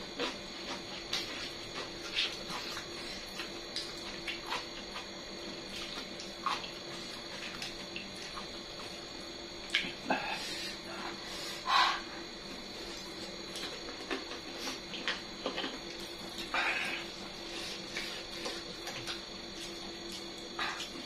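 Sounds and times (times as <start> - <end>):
wet chewing clicks and smacks: 0.1 - 10.0, 12.5 - 21.0.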